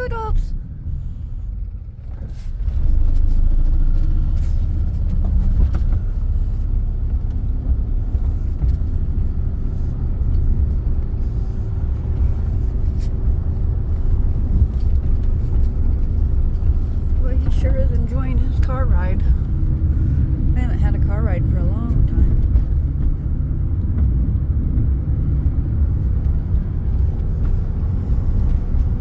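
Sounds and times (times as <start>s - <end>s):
road and wind noise: 0.0s - 29.0s.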